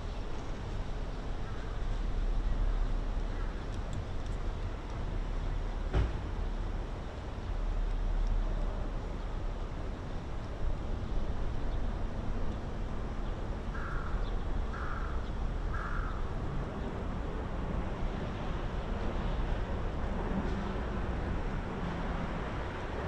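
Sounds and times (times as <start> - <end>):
crow cawing: 13.8 - 16.2.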